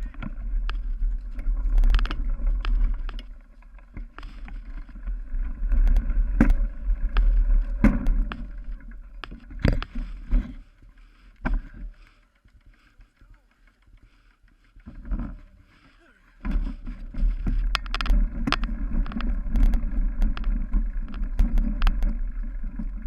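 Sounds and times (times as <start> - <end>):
wind rumble on microphone: 0.0 - 10.6, 16.4 - 23.0
bike knocking and rattling: 0.0 - 23.0.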